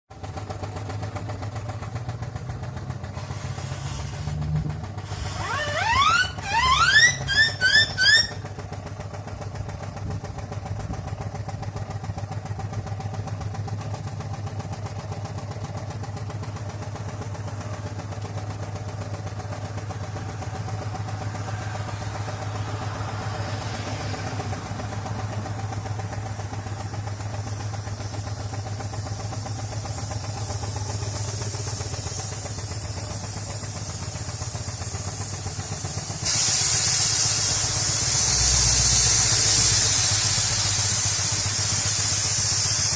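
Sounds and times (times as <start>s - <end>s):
steam traction engine running: 0.1s - 42.9s
loud steam hiss: 20.7s - 42.9s.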